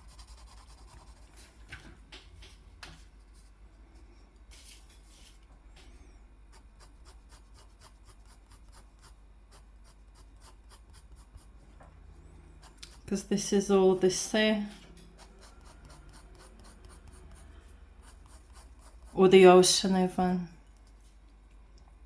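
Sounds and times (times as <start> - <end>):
drawing tool scratching on paper: 0.0 - 1.4, 6.5 - 11.6, 12.6 - 13.3, 14.2 - 19.3.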